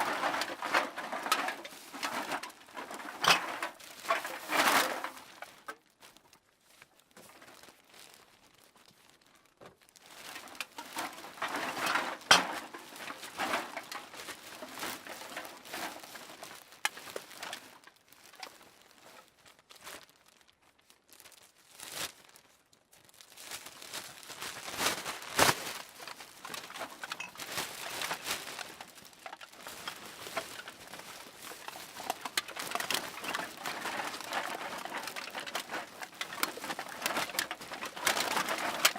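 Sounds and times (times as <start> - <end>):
bag rustling: 9.9 - 19.1, 23.1 - 38.9.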